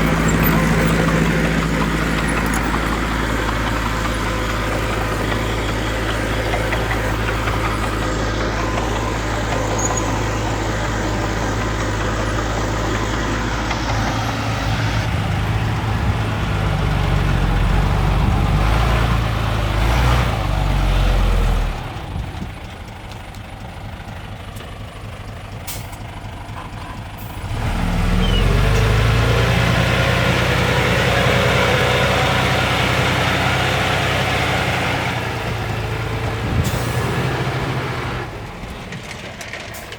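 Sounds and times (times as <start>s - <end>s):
diesel engines of heavy vehicles: 0.0s - 39.9s.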